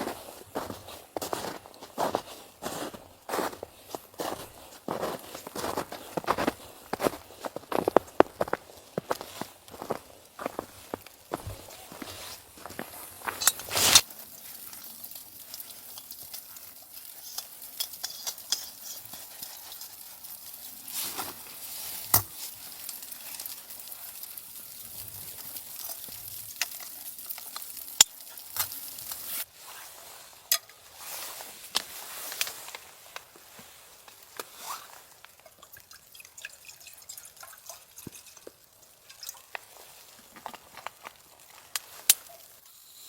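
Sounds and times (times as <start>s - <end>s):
food sizzling in a pan: 0.0s - 43.0s
stirring scrapes and clicks: 5.2s - 29.5s, 38.0s - 42.6s.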